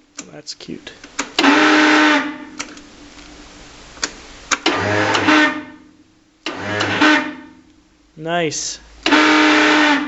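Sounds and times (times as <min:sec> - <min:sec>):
electric starter click and whir: 0:04.0 - 0:05.4, 0:06.4 - 0:07.3.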